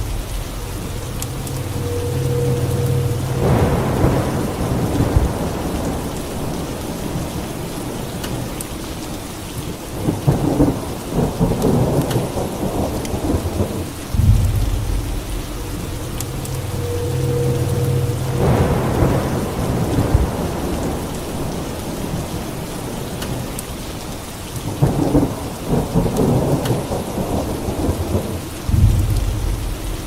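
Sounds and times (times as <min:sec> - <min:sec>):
low hum with mid tone: 0:00.0 - 0:06.6, 0:14.1 - 0:21.2
rolling thunder: 0:00.0 - 0:09.3, 0:09.9 - 0:30.0
steady rain: 0:00.0 - 0:30.0.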